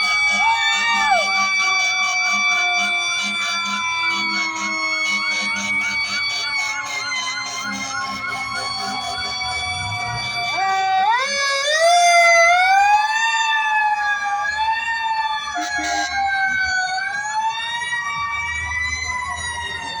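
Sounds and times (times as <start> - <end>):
fire truck sirens wailing: 0.0 - 20.0.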